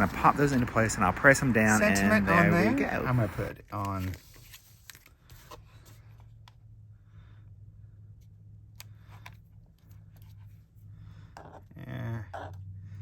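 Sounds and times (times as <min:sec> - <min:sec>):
paper cardstock being handled: 0:03.7 - 0:06.3
steady low hum: 0:05.6 - 0:13.0.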